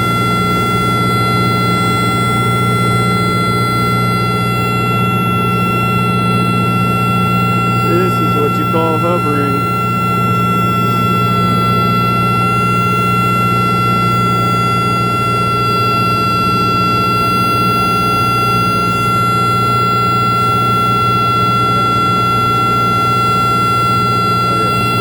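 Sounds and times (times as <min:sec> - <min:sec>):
high whine: 0:00.0 - 0:25.0
propeller plane engine drone: 0:00.0 - 0:25.0.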